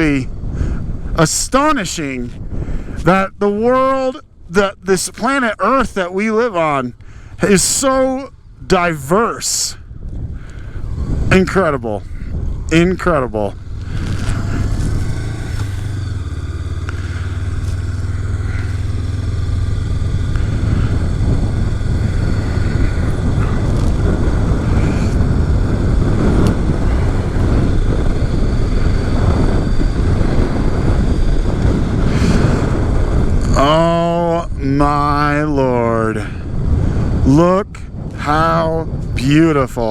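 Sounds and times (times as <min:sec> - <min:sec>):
road noise: 0:00.0 - 0:39.9
wind rumble: 0:00.0 - 0:39.9
person speaking: 0:03.0 - 0:09.8, 0:11.3 - 0:15.5, 0:33.5 - 0:36.4
motorcycle engine running: 0:09.9 - 0:35.4.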